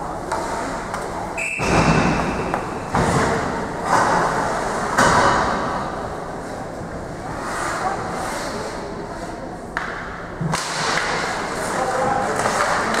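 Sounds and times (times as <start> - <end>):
thumps against rink boards: 0.3 - 4.3, 12.0 - 13.0.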